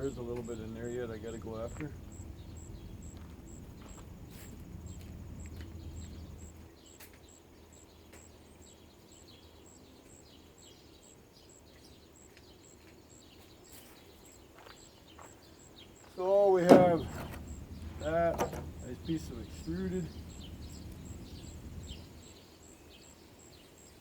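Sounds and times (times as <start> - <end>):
birds chirping: 0.0 - 24.0
low hum: 16.7 - 22.2.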